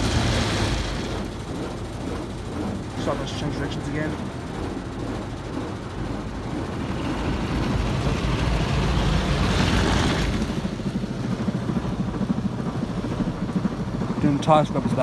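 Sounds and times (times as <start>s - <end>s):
rushing water noise: 0.0s - 10.8s
car wash mechanical rumble: 0.0s - 15.0s
fast low flapping: 0.0s - 15.0s.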